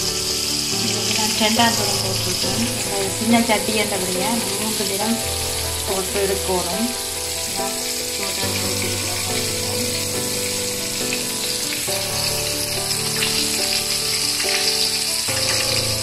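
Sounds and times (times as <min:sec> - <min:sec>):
background music of held notes: 0:00.0 - 0:16.0
chicken deep-frying in oil: 0:00.0 - 0:16.0.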